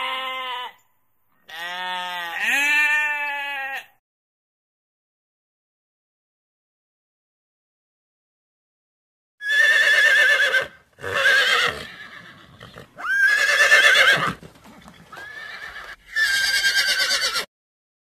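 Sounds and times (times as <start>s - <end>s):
horse whinnying: 9.4s - 17.5s.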